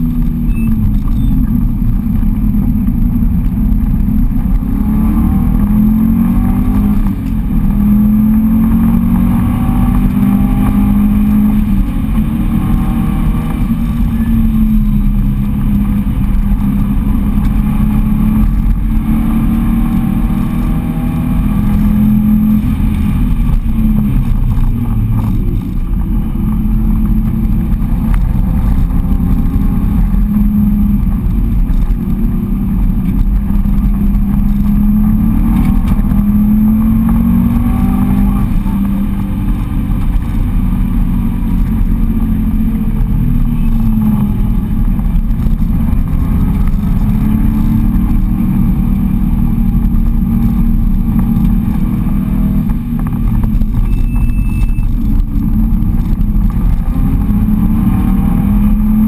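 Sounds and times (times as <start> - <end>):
car engine revving: 0.0 - 59.0
road and wind rumble: 0.0 - 59.0.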